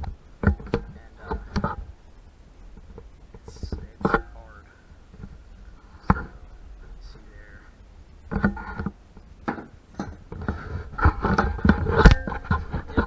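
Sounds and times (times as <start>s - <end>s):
metal tools clanking on metal: 9.5s - 10.3s.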